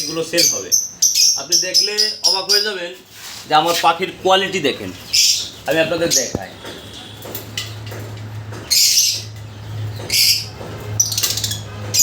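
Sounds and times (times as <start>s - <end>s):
lovebirds chirping: 0.0s - 2.9s, 3.6s - 7.5s
rattling bird chatter: 0.0s - 2.9s, 3.5s - 12.0s.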